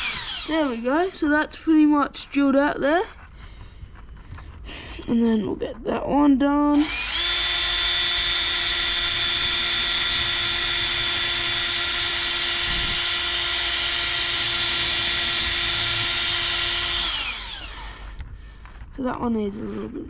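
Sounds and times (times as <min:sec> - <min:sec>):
power drill whining: 0:00.0 - 0:01.7, 0:06.7 - 0:18.3.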